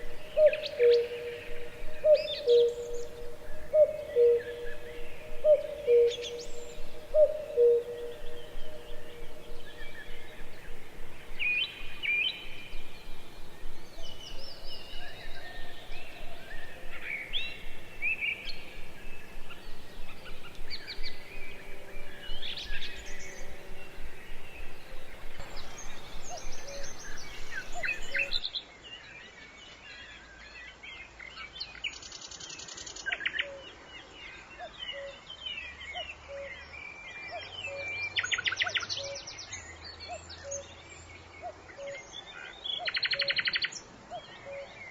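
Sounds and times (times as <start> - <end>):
birds chirping and calling: 0.0 - 28.5.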